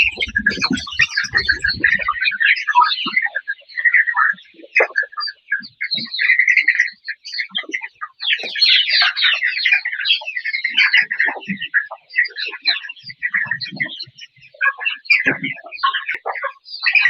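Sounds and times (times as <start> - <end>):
chickens chirping: 0.0 - 2.3.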